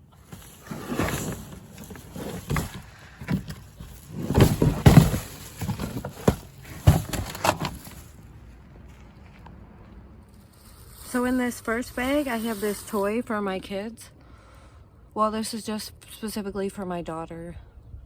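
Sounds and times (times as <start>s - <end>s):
shopping bag rustling: 0.0s - 8.2s.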